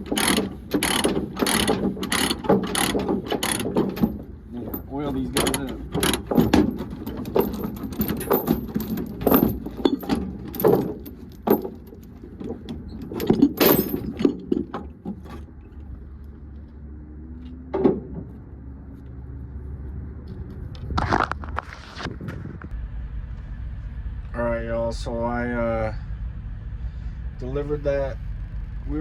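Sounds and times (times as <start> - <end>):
metal chain clanking: 0.0 - 16.0
low engine hum: 0.0 - 29.0.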